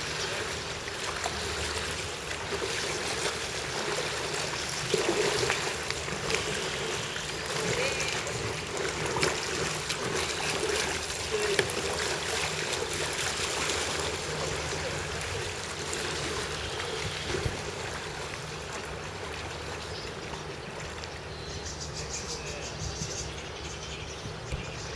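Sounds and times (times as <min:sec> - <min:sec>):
water splashing around a boat: 0:00.0 - 0:24.9
faint voices: 0:06.9 - 0:08.7, 0:10.4 - 0:12.5.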